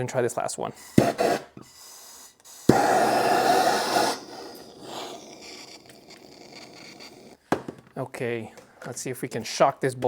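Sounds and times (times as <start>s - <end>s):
hissing burst: 0.8s - 7.4s.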